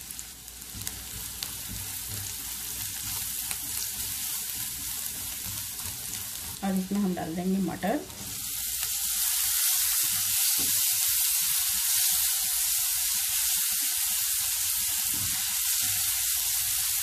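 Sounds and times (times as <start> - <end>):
peas sizzling in hot oil: 0.0 - 17.0
spatula scraping and tapping: 0.7 - 6.6.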